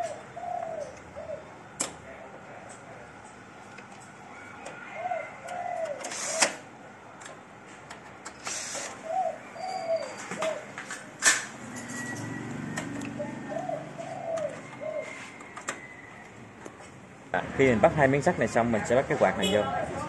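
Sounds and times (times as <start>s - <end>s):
bird cooing: 0.0s - 1.7s, 4.3s - 6.4s, 9.0s - 10.8s, 11.8s - 16.2s.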